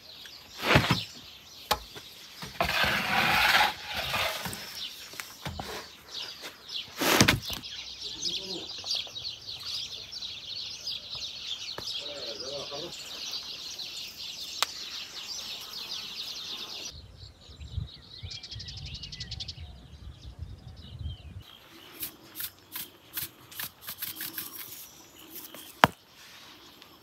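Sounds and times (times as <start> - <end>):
small birds chirping: 0.0 - 27.0
high bird trill: 21.5 - 26.0.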